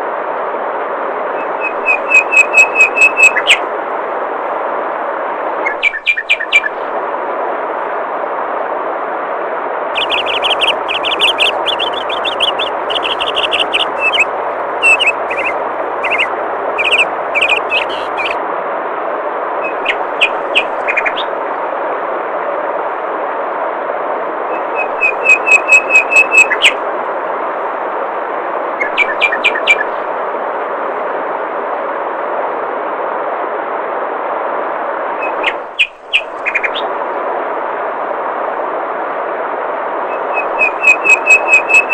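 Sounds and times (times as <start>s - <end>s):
songbirds chirping: 5.7s - 6.8s, 10.0s - 18.4s, 19.6s - 21.3s
flowing water rushing: 10.0s - 18.4s.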